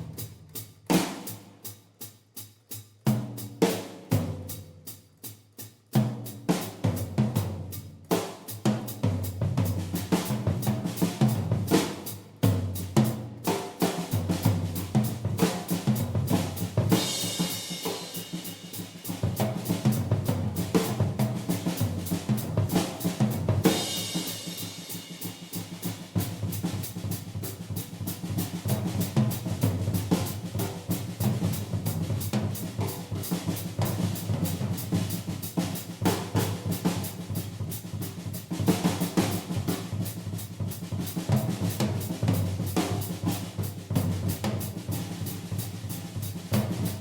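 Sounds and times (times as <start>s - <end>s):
bass drum: 0.0s - 1.6s, 6.0s - 47.0s
snare and tom rolls: 6.0s - 47.0s.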